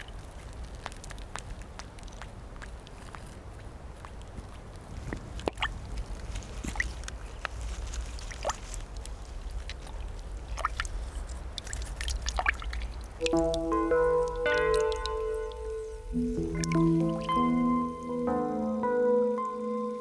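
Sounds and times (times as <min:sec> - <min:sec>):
water dripping into a pond: 0:00.0 - 0:07.5, 0:08.1 - 0:18.6
steady low rumble: 0:12.8 - 0:18.9
music: 0:13.2 - 0:20.0.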